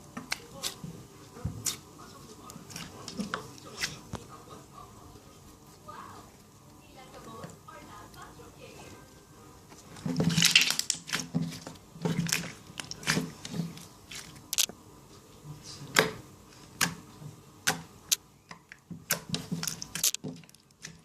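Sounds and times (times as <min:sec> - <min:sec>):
slime squeezed with wet pops: 0:10.3 - 0:11.3.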